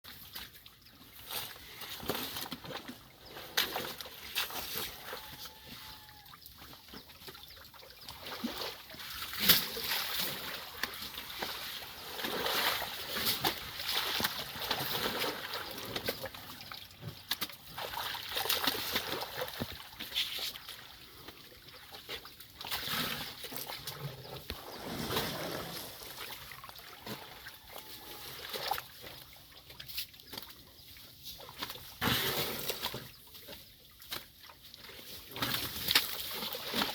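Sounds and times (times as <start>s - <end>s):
elephant splashing in mud: 8.3s - 16.4s, 22.6s - 29.0s.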